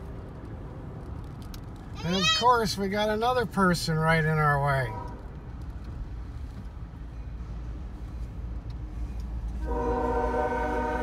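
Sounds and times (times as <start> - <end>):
locomotive air horn blast: 4.8 - 5.2, 9.6 - 11.0.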